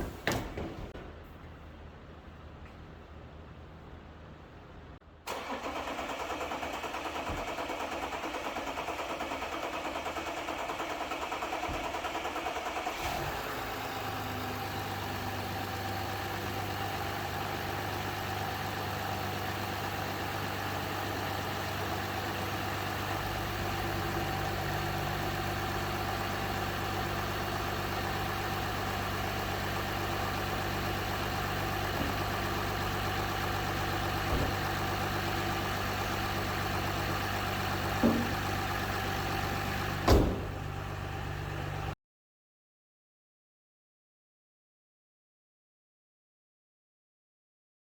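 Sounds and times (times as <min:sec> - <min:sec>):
diesel engine idling: 0:05.2 - 0:42.0.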